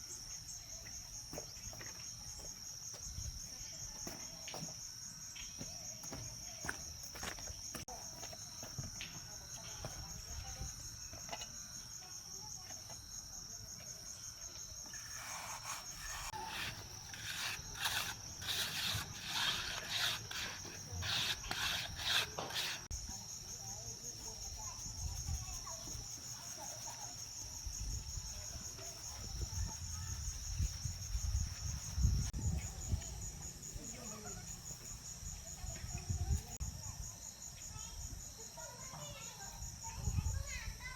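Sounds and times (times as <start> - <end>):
crickets chirring: 0.0 - 40.9
rough scraping strokes: 14.9 - 22.9.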